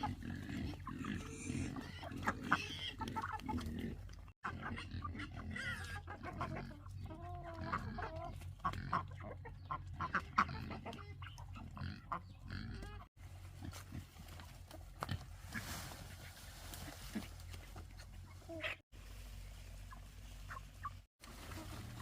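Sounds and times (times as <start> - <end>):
pigs grunting: 0.0 - 15.7
chickens clucking: 0.0 - 22.0.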